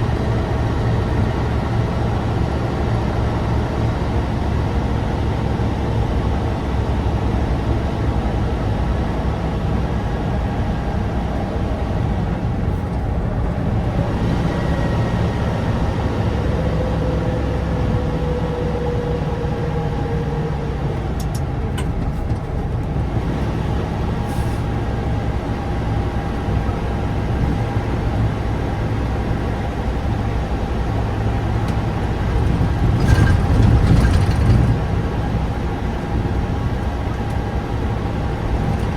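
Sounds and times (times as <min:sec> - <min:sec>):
diesel truck engine running: 0:00.0 - 0:38.9
engine whine sliding down: 0:12.7 - 0:25.6.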